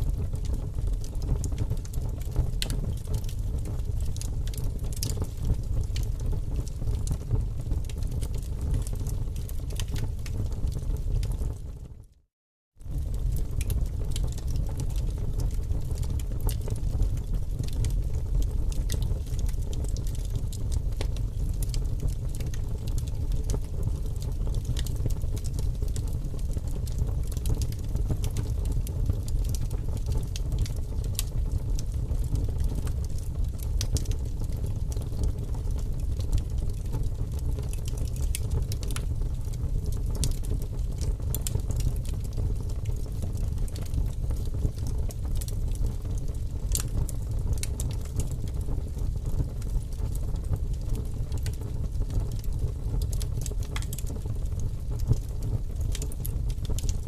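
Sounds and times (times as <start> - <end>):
low rumble of flames: 0.0 - 12.2, 12.8 - 57.0
firewood crackling and popping: 0.1 - 11.8, 12.8 - 57.0.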